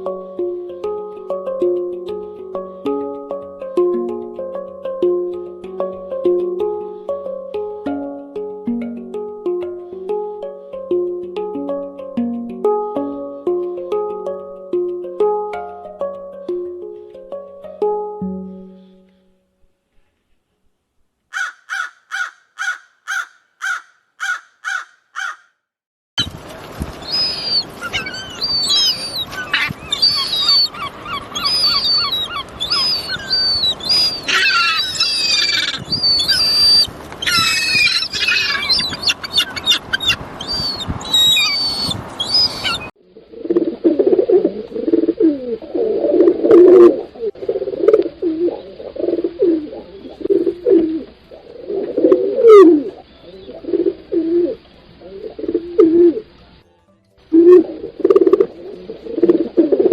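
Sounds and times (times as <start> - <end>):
small birds chirping and trilling: 21.3 - 25.4, 27.0 - 42.9
bird giving low calls: 21.3 - 25.5, 27.0 - 56.3.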